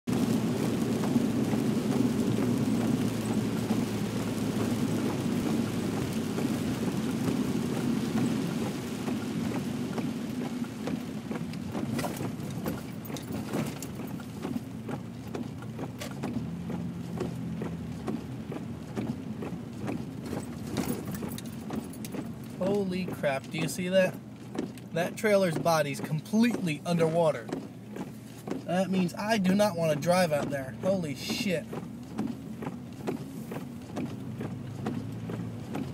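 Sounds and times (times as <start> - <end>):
vehicle rumble from inside cabin: 0.1 - 35.9
sharp taps: 8.6 - 35.9.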